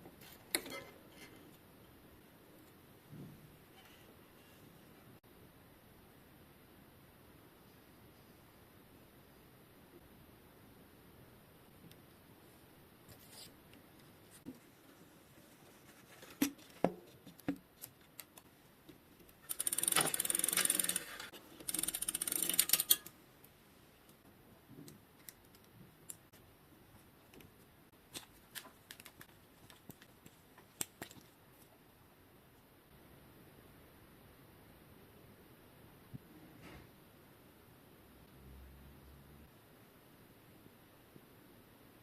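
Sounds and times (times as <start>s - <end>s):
bicycle chain metal clicks: 19.5s - 23.1s.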